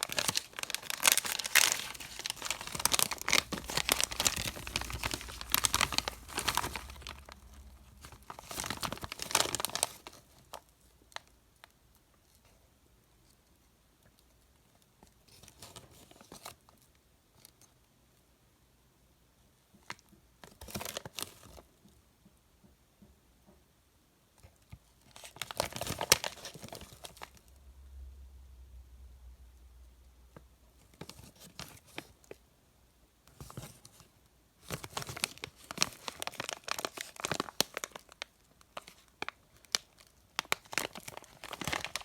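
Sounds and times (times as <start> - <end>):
candy wrappers crinkling: 0.0 - 12.4, 25.0 - 27.5, 34.6 - 42.0.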